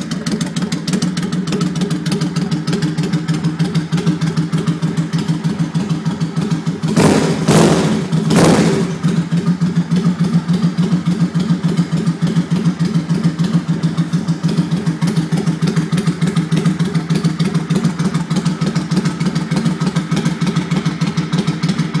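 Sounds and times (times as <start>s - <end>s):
motorcycle engine idling: 0.0s - 22.0s
engine revving bursts: 6.8s - 9.5s.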